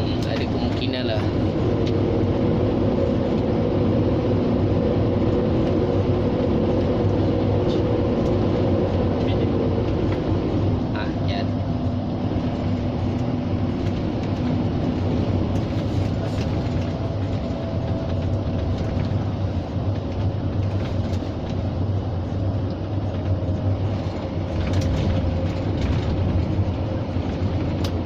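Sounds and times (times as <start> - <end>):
diesel truck engine running: 0.0 - 28.0
road rumble: 0.0 - 28.0.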